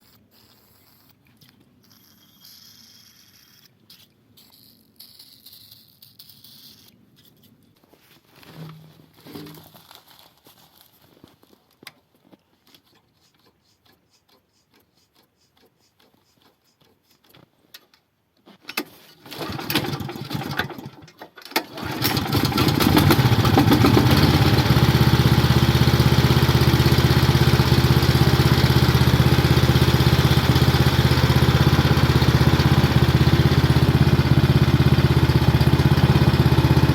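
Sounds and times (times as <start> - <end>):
engine starting and running: 18.7 - 36.9.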